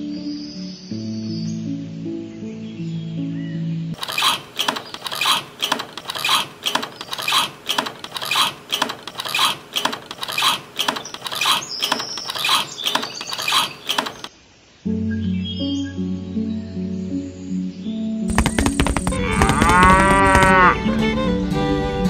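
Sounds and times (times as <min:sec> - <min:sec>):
hand pump handle rasping: 0:04.0 - 0:14.3, 0:18.3 - 0:20.6.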